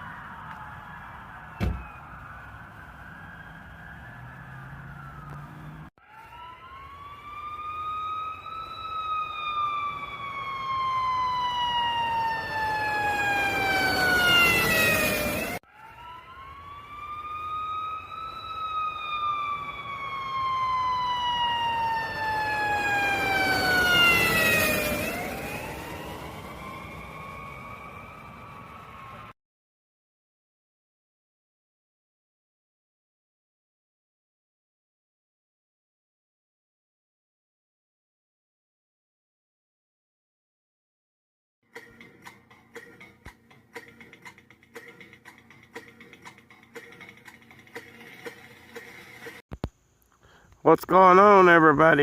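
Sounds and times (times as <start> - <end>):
siren wailing: 0.0 - 29.4.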